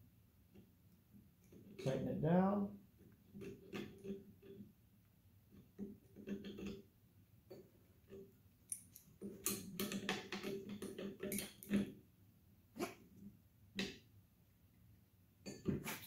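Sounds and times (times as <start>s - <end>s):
wrench clicking and scraping metal: 8.1s - 11.9s.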